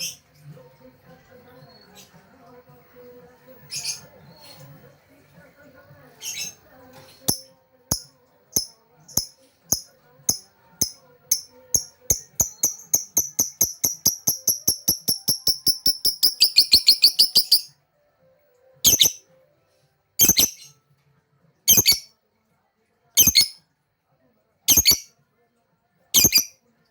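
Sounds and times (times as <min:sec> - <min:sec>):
lovebird chattering chirps: 0:07.3 - 0:17.7, 0:18.9 - 0:19.2, 0:20.2 - 0:20.7, 0:21.7 - 0:22.1, 0:23.2 - 0:23.6, 0:24.7 - 0:25.1, 0:26.2 - 0:26.5.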